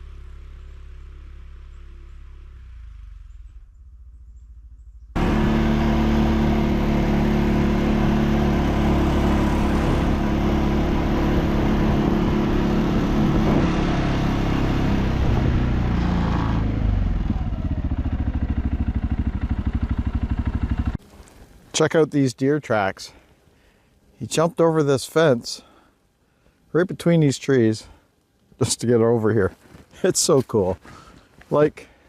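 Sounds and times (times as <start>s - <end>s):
atv engine idling: 4.3s - 13.3s, 16.8s - 21.4s.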